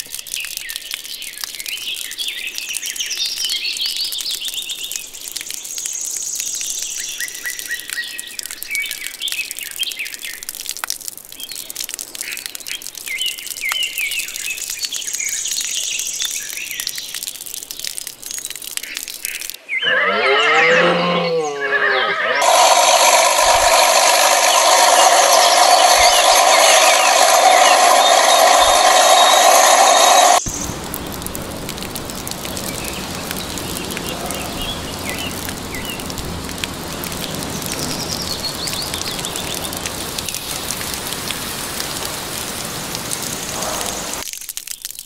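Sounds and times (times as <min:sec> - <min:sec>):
birds chirping: 0:19.6 - 0:42.0
wavering animal call: 0:19.8 - 0:22.4
engine running: 0:22.4 - 0:44.1.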